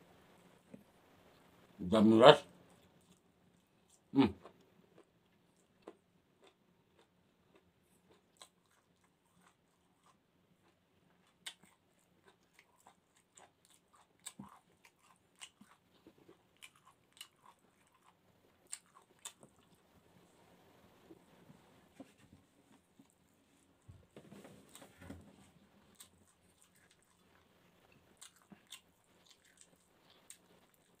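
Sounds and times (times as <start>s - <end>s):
wet chewing clicks and smacks: 2.8s - 19.8s, 25.9s - 31.0s.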